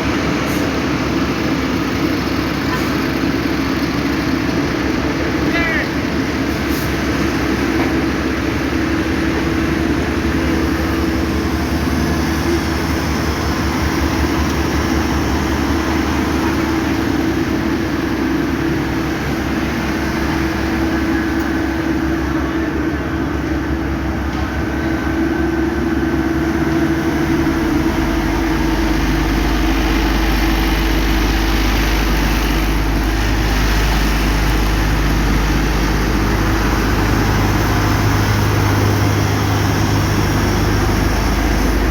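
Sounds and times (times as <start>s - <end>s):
diesel engines of heavy machinery: 0.0s - 41.9s.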